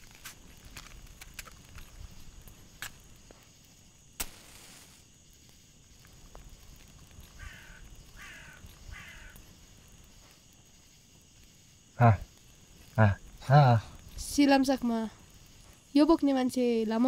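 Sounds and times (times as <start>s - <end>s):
sharp click with hiss: 4.2s - 5.0s
crow cawing: 7.3s - 9.5s.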